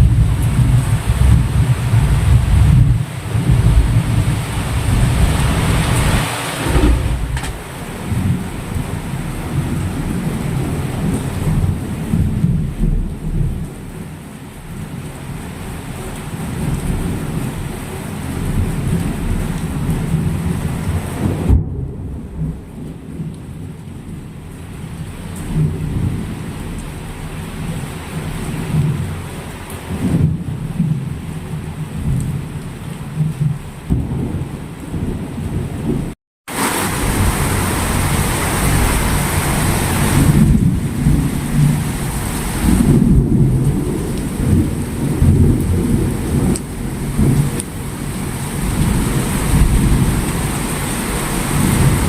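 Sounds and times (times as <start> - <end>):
heavy low rumble: 0.0 - 12.7
heavy rain pouring: 0.0 - 52.0.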